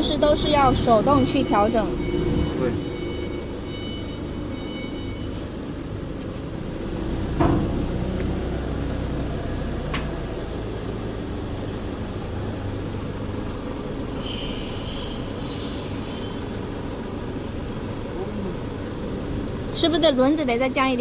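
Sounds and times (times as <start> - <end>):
factory machinery hum: 5.8 - 21.0
sharp knock on machine: 7.4 - 8.4.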